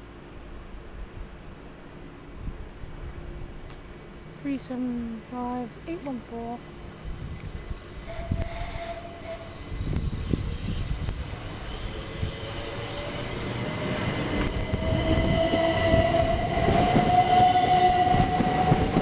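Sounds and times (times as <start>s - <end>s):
train rumble: 0.0s - 19.0s
train motor whine rising: 6.6s - 19.0s.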